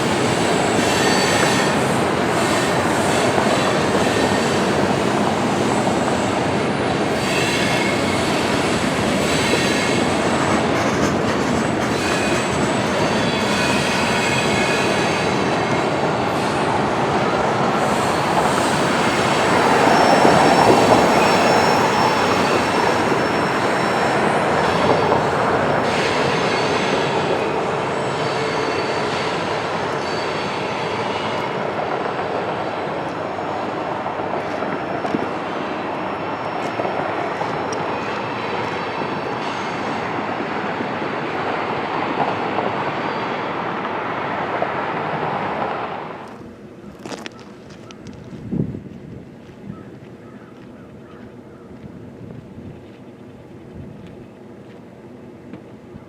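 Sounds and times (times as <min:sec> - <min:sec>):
train wheel squeal: 0:00.0 - 0:43.9
freight train rolling on rails: 0:00.0 - 0:56.0.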